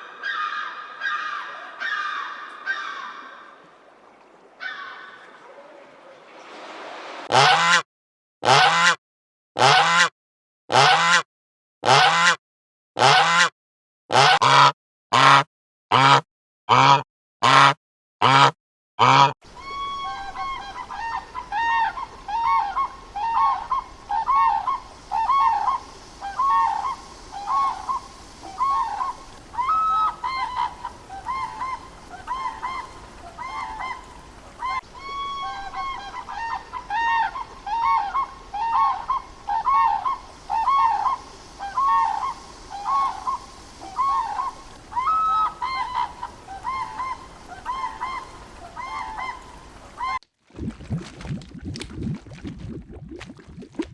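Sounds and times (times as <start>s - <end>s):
honking goose-like calls: 7.3s - 7.8s, 8.4s - 9.0s, 9.6s - 10.1s, 10.7s - 11.2s, 11.8s - 12.4s, 13.0s - 13.5s, 14.1s - 50.2s.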